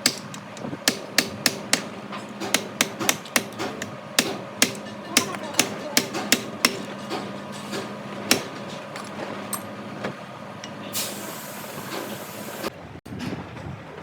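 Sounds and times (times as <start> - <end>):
hiss: 11.0 - 12.7.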